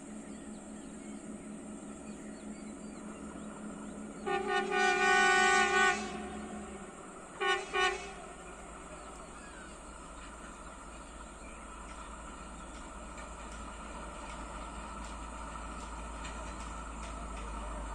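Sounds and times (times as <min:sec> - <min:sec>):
engine humming: 0:00.0 - 0:17.9
train horn blasts: 0:04.2 - 0:08.7.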